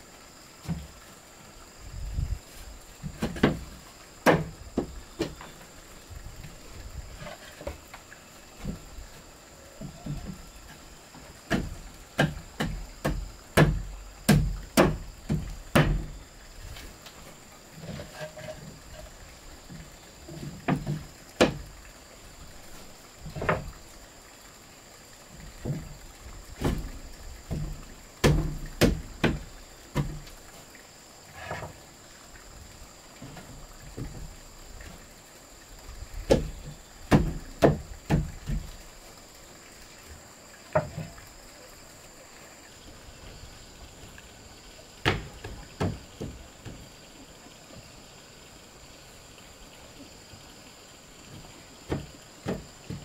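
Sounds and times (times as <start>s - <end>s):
knocks: 4.2s - 5.4s, 11.5s - 16.1s, 27.5s - 30.3s, 36.3s - 38.7s, 45.0s - 46.8s, 51.9s - 53.0s.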